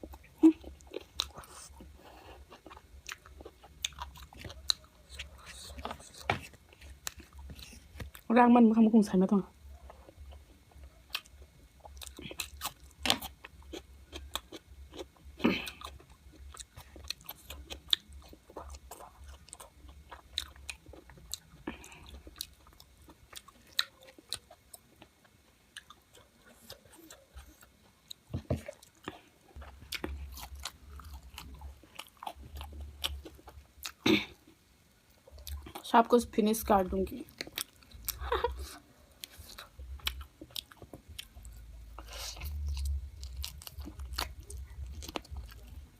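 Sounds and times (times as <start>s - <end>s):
chewing and crunching food: 0.0s - 8.4s, 9.2s - 45.9s.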